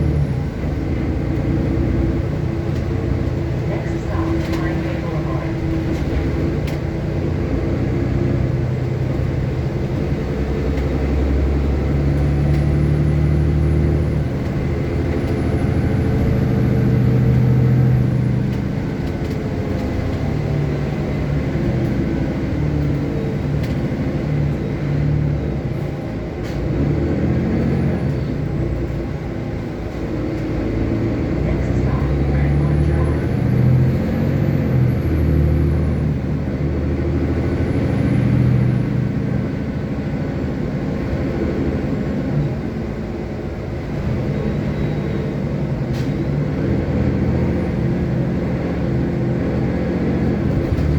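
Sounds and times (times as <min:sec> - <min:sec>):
bus engine hum: 0:00.0 - 0:50.9
road noise: 0:00.0 - 0:50.9.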